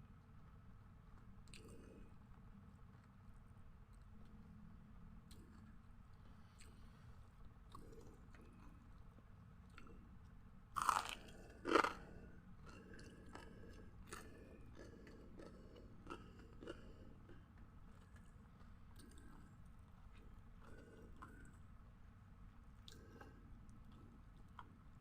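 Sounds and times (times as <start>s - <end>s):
chewing with small crackles: 0.0s - 25.0s
biting crunchy food: 10.7s - 19.6s.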